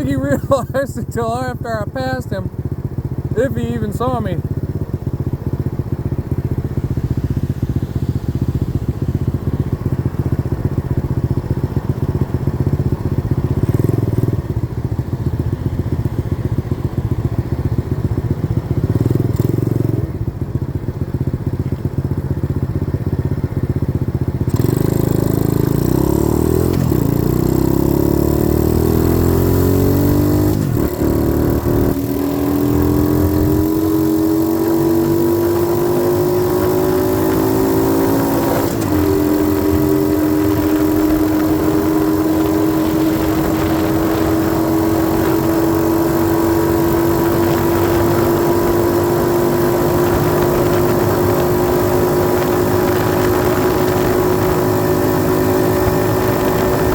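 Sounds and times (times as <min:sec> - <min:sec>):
dirt bike engine accelerating: 0:00.0 - 0:21.8, 0:24.1 - 0:56.9.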